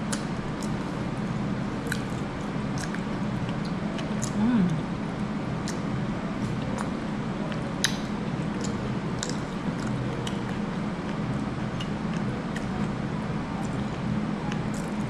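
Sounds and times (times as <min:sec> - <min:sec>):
steady low hum: 0:00.0 - 0:15.0
person chewing: 0:01.8 - 0:04.8, 0:08.6 - 0:10.6.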